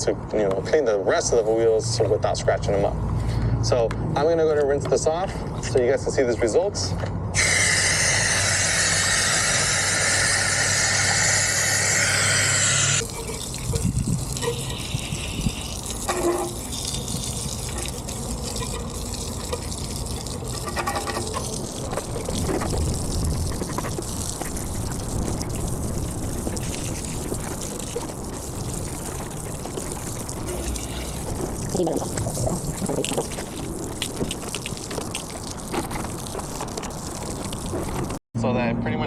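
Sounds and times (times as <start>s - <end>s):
hose spraying water on wheel: 7.4s - 38.2s
water trickling off car: 7.4s - 38.2s.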